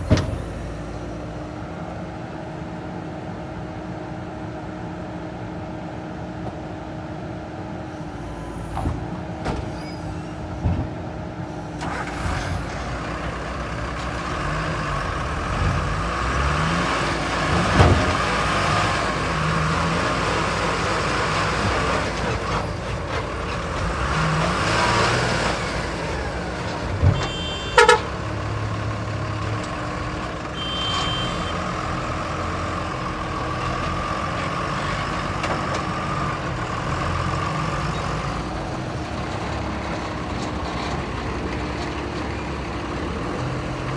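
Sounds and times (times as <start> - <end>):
diesel engine running: 7.2 - 43.9.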